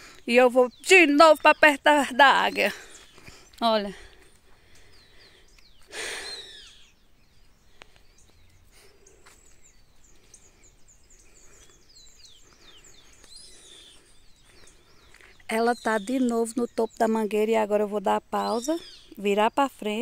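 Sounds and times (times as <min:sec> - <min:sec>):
small birds chirping: 0:00.0 - 0:20.0
loud bird call: 0:05.9 - 0:06.9.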